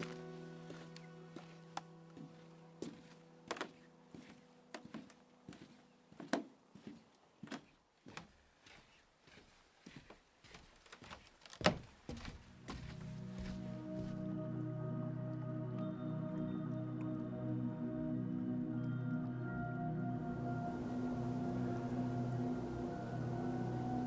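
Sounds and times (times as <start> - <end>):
music: 0.0 - 6.0, 12.5 - 24.0.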